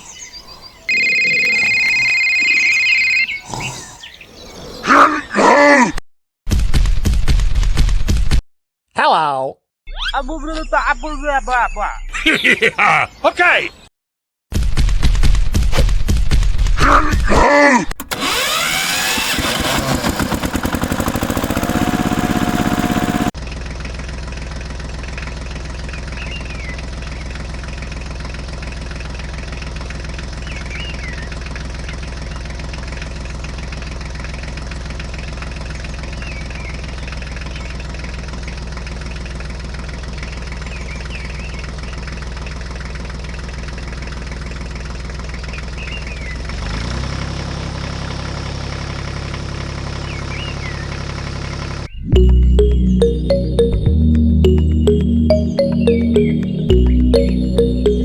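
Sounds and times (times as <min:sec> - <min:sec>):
small engine idling: 0:18.0 - 0:51.9
rising engine whine: 0:18.1 - 0:23.3, 0:52.0 - 0:58.0.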